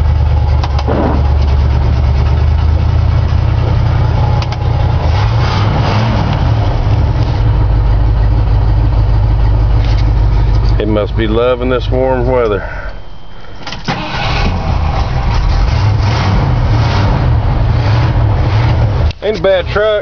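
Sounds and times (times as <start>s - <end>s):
pickup engine running: 0.0s - 20.0s.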